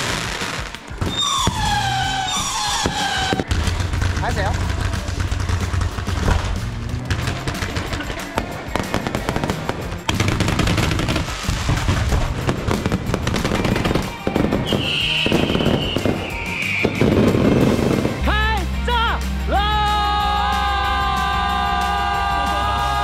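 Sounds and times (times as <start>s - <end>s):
fireworks crackling and banging: 0.0s - 18.3s
music: 0.0s - 23.0s
high shrill falling sound: 1.1s - 3.4s.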